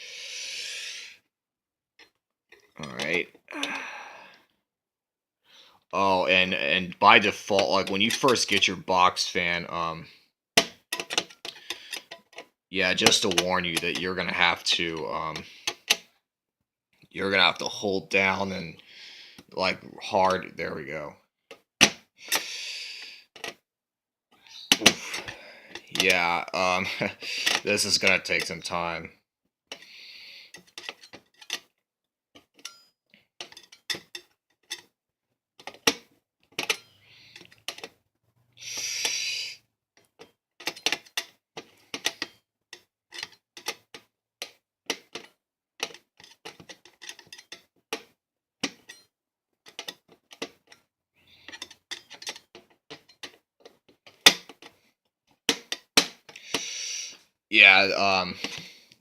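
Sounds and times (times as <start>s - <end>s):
short hissing scrapes: 0.0s - 1.2s, 38.6s - 39.6s, 56.4s - 57.2s
screwdriver clicking and scraping: 10.6s - 12.4s, 22.3s - 22.5s, 27.0s - 28.6s, 30.5s - 31.7s, 36.6s - 37.9s, 40.0s - 42.4s, 43.1s - 49.0s, 49.7s - 50.8s, 51.4s - 54.8s, 58.4s - 58.8s.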